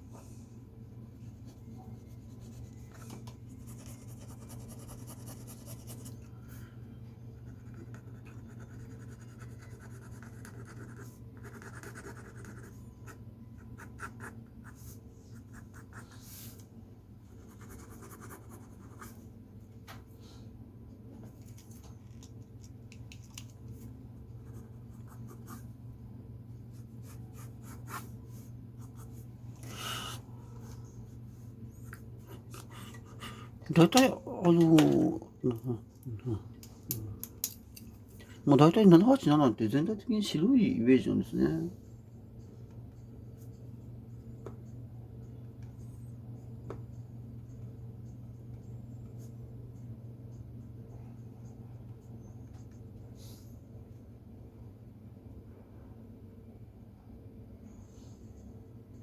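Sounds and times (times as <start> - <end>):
steady low hum: 0.0 - 59.0
pencil scratching on paper: 1.8 - 6.2, 7.4 - 16.6, 17.4 - 19.2.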